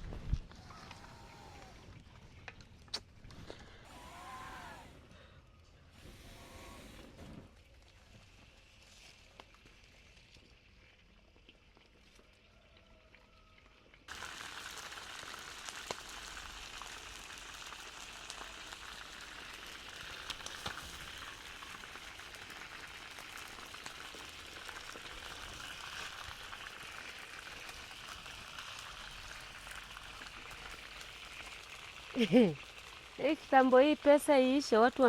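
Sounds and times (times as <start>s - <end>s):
food sizzling in a pot: 14.1s - 35.0s.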